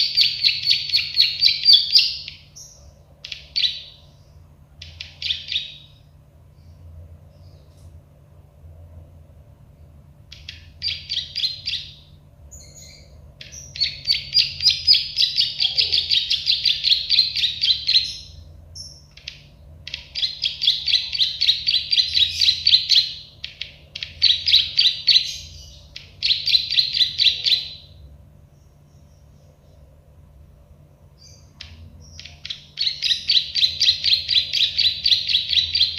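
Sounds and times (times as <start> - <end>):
bird chirping rapidly: 0.0 - 7.7, 10.3 - 29.7, 31.1 - 35.9.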